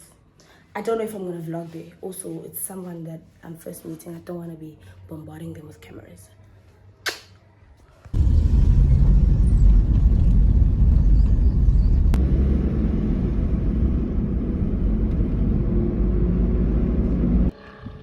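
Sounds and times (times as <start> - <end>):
car low rumble: 8.1 - 17.5.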